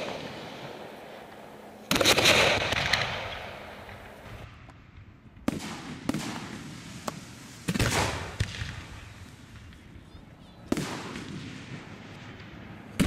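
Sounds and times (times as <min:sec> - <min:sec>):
firework bangs echoing: 0:00.0 - 0:10.0, 0:10.6 - 0:13.0
small firework cracks: 0:00.0 - 0:13.0.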